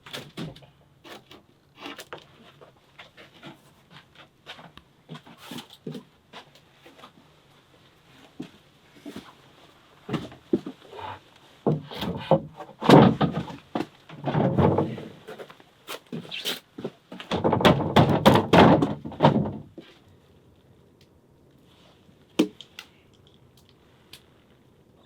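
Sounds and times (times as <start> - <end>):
wood scraping: 10.1 - 20.0
wooden knocks and thuds: 11.6 - 15.1, 17.1 - 19.9.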